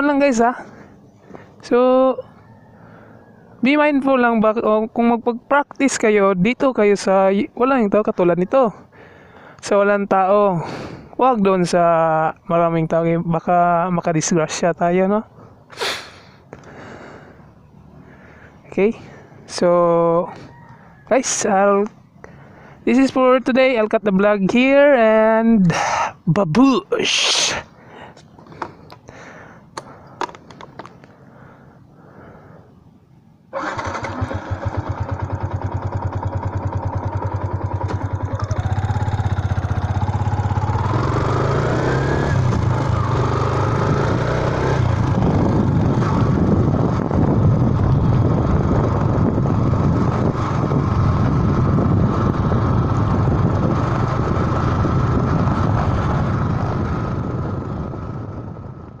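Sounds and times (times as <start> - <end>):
motorcycle engine running: 33.6 - 59.0.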